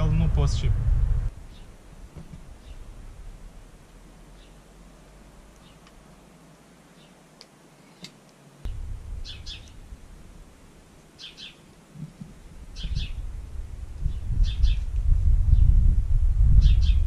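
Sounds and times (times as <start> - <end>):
low rumbling noise: 0.0 - 5.6, 8.6 - 17.0
small bird chirping: 8.7 - 9.9, 11.2 - 11.7, 12.8 - 13.3, 14.0 - 15.8, 16.6 - 17.0.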